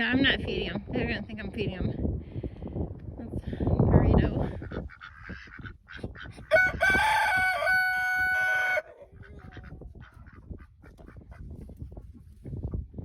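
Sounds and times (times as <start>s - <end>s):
rooster crowing: 6.5s - 9.0s.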